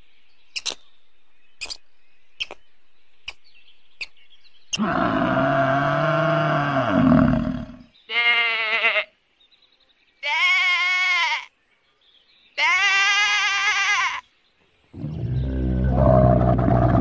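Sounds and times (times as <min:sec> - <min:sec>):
young goat bleating: 0:08.1 - 0:09.1, 0:10.2 - 0:11.5, 0:12.6 - 0:14.2.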